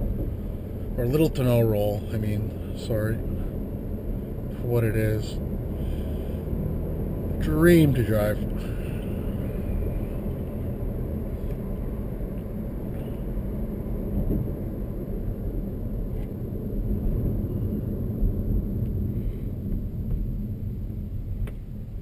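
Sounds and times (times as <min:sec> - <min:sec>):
road and engine rumble in car: 0:00.0 - 0:22.0.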